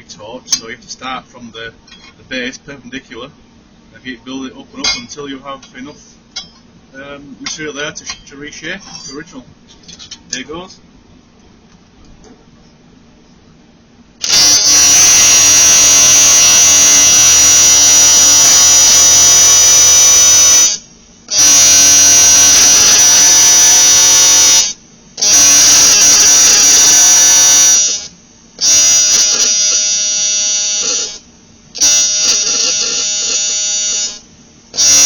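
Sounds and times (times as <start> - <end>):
welding arc buzzing: 14.2 - 35.0.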